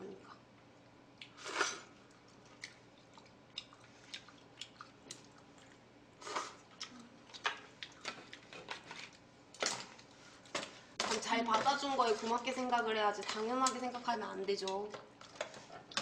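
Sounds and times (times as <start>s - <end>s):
people chewing: 1.2s - 9.2s.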